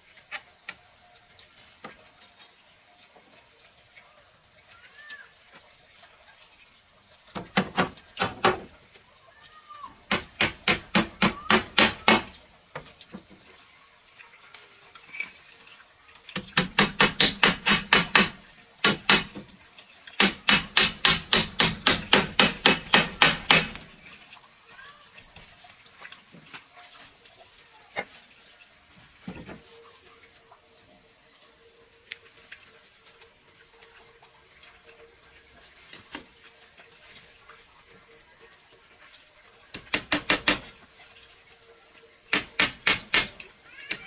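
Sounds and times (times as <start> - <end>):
hammer striking wood: 7.4 - 8.7, 10.1 - 12.4, 16.4 - 19.5, 20.2 - 23.9, 39.8 - 40.7, 42.3 - 43.4.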